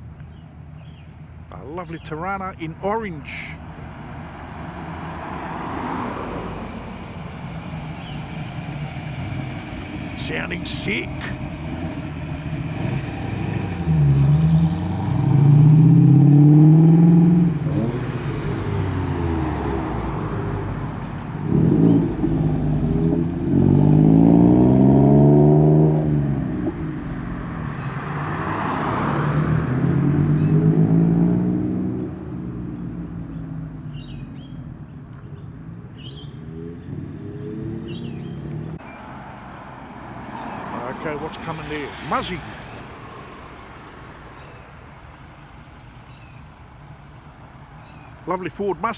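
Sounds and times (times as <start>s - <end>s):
bird chirps: 0.0s - 4.1s, 7.8s - 8.4s, 32.0s - 39.7s, 44.3s - 48.9s
car engines revving past: 0.3s - 48.9s.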